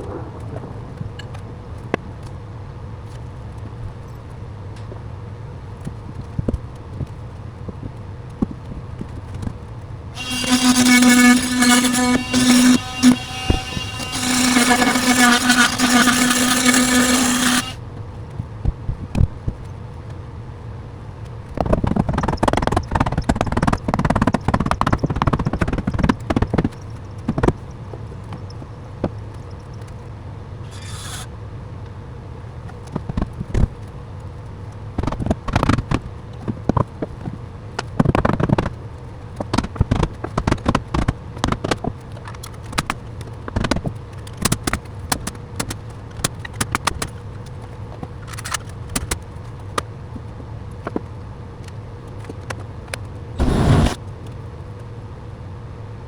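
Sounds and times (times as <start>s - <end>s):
wood scraping: 10.2s - 17.8s, 30.7s - 31.3s, 53.4s - 54.0s.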